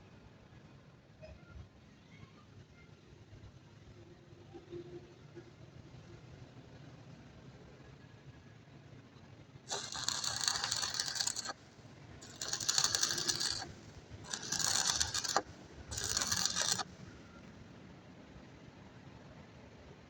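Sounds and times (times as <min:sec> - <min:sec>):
rapid metallic rattling: 0:09.7 - 0:11.5, 0:12.2 - 0:16.8.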